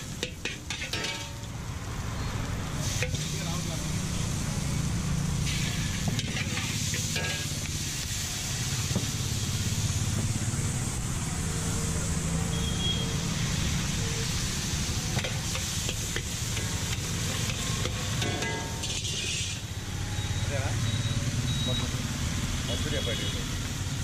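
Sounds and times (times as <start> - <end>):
vegetables sizzling in a wok: 0.0 - 24.0
metal spatula scraping a pan: 0.2 - 1.5, 5.5 - 7.7, 15.2 - 19.7.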